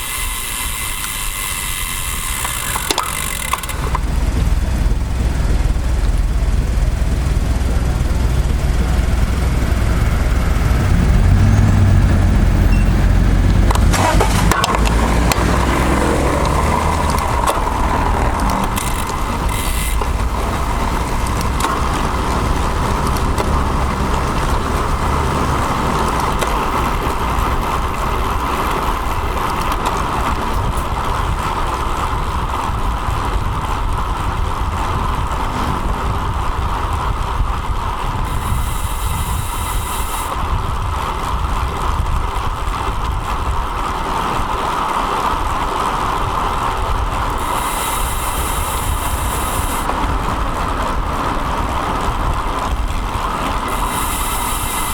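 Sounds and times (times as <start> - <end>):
traffic: 0.0 - 54.9
wind and road rumble: 0.0 - 54.9
high hiss: 38.3 - 40.3, 47.4 - 49.9, 53.7 - 54.9.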